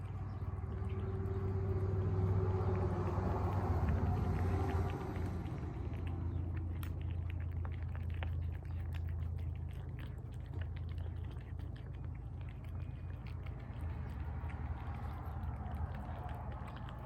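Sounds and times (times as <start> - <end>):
cats chewing and licking: 0.0 - 17.0
steady low hum: 0.0 - 17.0.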